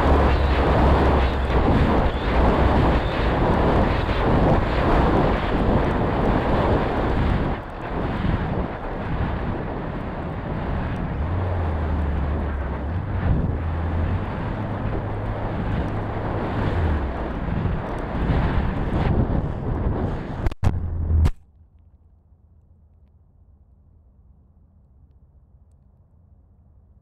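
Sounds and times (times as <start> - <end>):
wind buffeting microphone: 0.0 - 21.3
low hum: 0.0 - 27.0.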